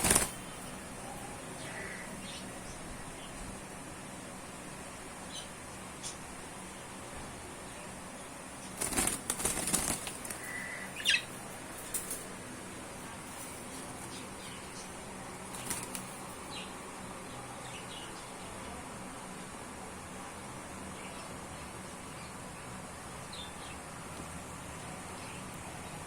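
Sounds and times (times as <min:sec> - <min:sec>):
birds flapping wings: 0:00.0 - 0:00.8, 0:08.6 - 0:12.4, 0:15.3 - 0:16.5.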